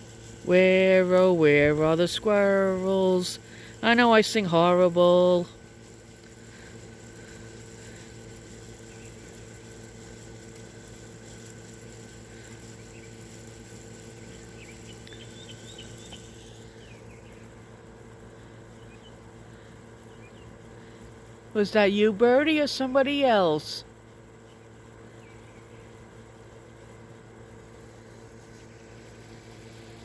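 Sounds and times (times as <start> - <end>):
air-conditioning unit humming: 0.0 - 30.0
faint bird chirps: 14.2 - 17.6, 18.7 - 21.0.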